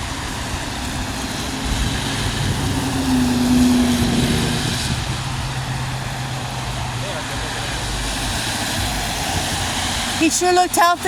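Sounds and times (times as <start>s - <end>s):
low hum of engines: 0.0s - 10.3s
motor vehicle passing: 0.0s - 10.8s.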